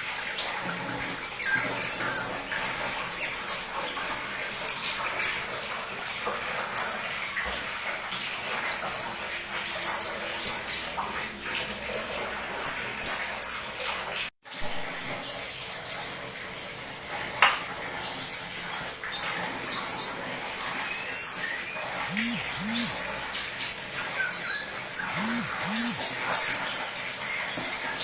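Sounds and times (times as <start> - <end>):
bird chirping and twittering: 20.6 - 23.1, 23.9 - 27.8
low arching hoots: 22.1 - 23.1.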